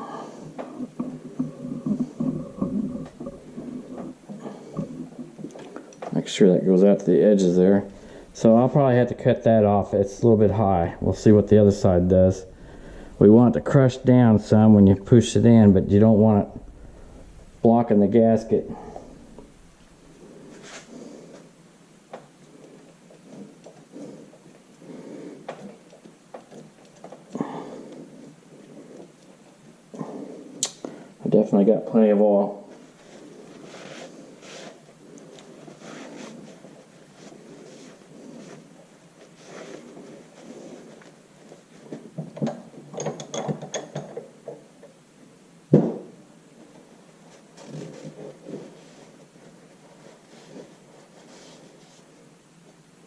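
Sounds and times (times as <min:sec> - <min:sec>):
soft rubbing and scraping: 0:00.1 - 0:21.6, 0:31.6 - 0:42.2, 0:46.6 - 0:52.8
tools clicking and tapping: 0:42.4 - 0:44.6.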